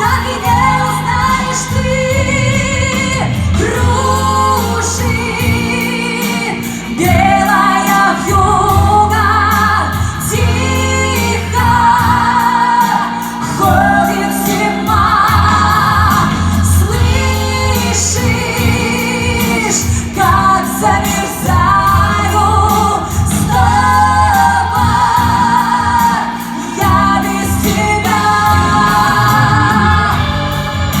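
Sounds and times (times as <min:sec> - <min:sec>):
pop backing track: 0:00.0 - 0:31.0
women singing with vibrato: 0:00.0 - 0:31.0.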